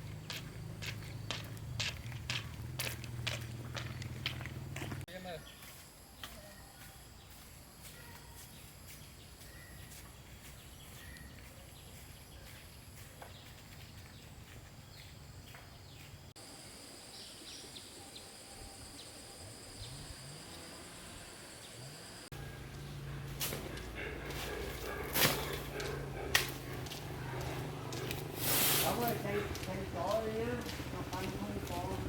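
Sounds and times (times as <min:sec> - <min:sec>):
faint bird chirps: 0:05.4 - 0:14.1
insect drone: 0:16.4 - 0:25.6.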